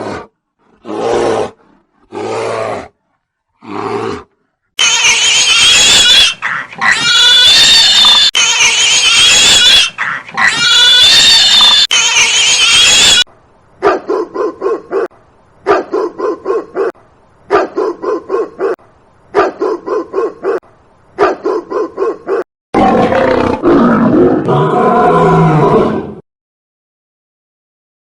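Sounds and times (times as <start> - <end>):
loud harsh animal call: 4.8 - 13.2.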